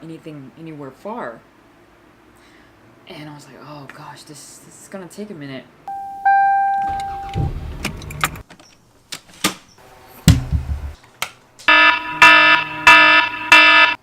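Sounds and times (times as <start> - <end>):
low thuds: 6.9 - 8.4, 10.2 - 11.0.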